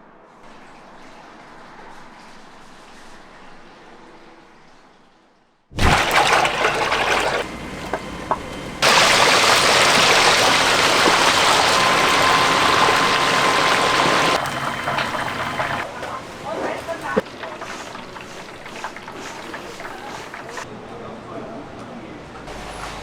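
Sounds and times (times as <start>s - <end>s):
chicken sizzling in hot oil: 8.4s - 15.9s, 16.9s - 20.7s.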